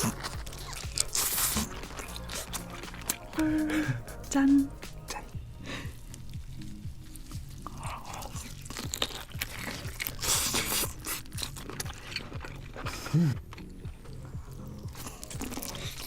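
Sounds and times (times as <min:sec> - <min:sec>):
lobster shell crunching: 0:00.0 - 0:03.3, 0:06.1 - 0:16.0
person humming: 0:00.0 - 0:06.0
background music with beat: 0:00.0 - 0:16.0.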